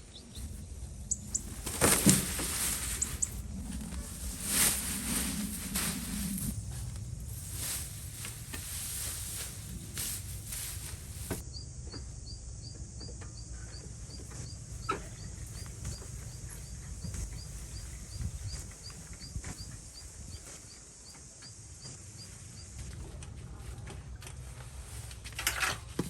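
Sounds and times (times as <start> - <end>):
low rumble: 0.0 - 11.4.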